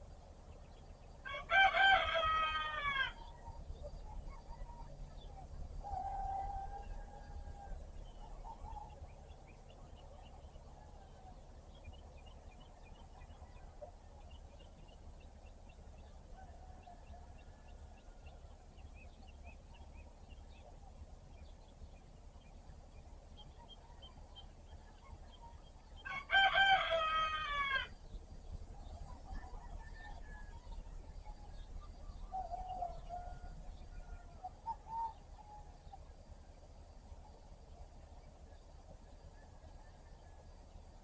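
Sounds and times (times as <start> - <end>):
small birds chirping: 0.0 - 41.0
rooster crowing: 1.2 - 3.6, 5.8 - 7.9, 26.0 - 28.0.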